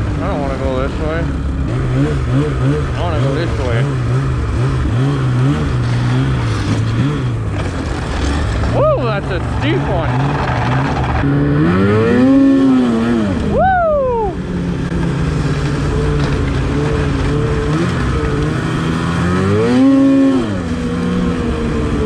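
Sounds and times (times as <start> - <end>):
snowmobile engine revving: 0.0 - 22.0
person shouting: 13.5 - 14.4.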